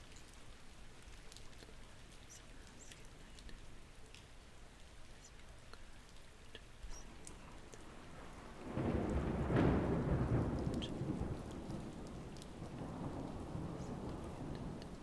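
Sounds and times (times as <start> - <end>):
steady rain: 0.0 - 15.0
thunder rumbling: 7.8 - 15.0.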